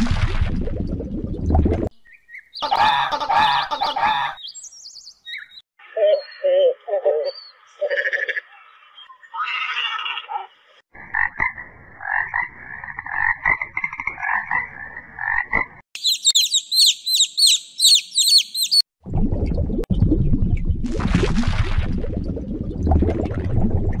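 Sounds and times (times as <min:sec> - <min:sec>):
animal calls: 0:16.0 - 0:18.8
rapid high-pitched chirps: 0:16.0 - 0:18.9.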